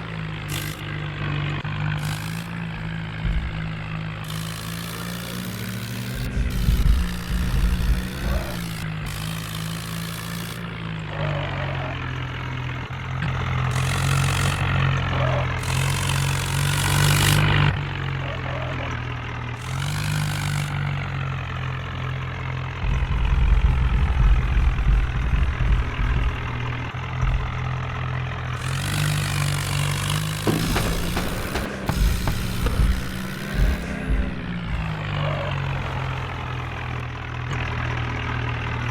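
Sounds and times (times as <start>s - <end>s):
heavy low rumble: 0.0s - 9.5s, 22.5s - 29.0s, 30.4s - 37.4s
tractor diesel engine running: 0.0s - 38.9s.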